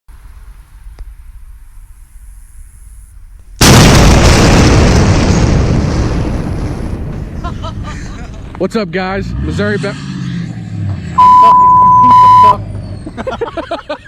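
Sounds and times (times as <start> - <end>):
explosive blast with rumble: 3.6 - 8.6.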